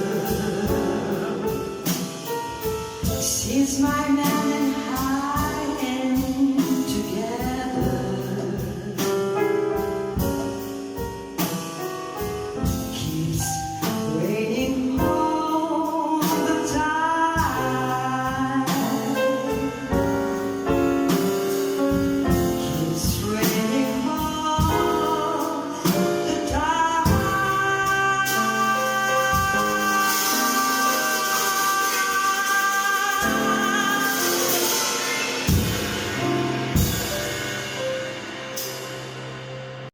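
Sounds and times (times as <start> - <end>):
person singing: 0.0 - 2.5, 12.9 - 20.2, 22.2 - 35.5
instrumental accompaniment: 0.0 - 39.9.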